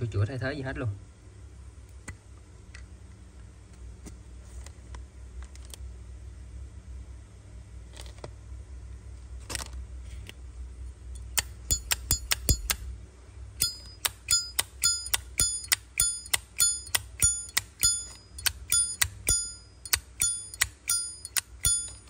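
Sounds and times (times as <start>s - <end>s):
low steady hum: 0.0s - 22.0s
lighter clicks and taps: 13.6s - 22.0s.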